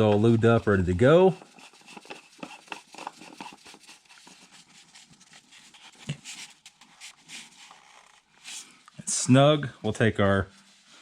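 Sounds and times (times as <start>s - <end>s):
filter cap clicking and scraping: 1.3s - 4.5s.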